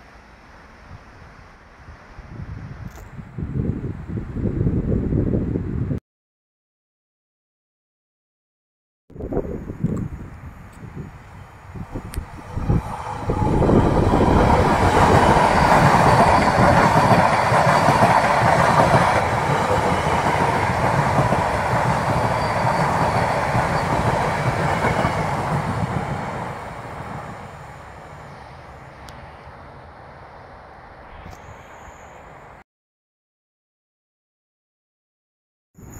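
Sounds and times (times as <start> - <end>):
train wheels rumbling on rails: 11.7 - 28.4.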